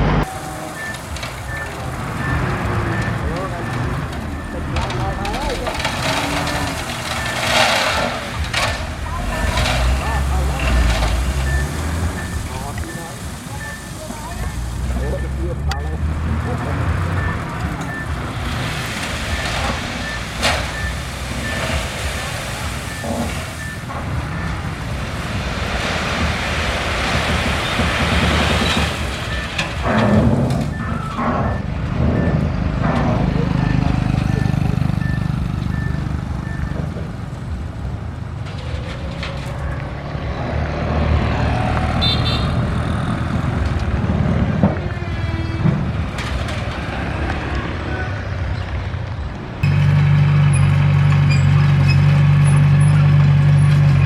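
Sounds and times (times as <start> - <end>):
rushing noise: 0.0 - 34.2
steel tracks clattering: 0.0 - 35.4
diesel engine rumble: 0.0 - 54.0
sharp knocks and clanks: 25.3 - 34.3.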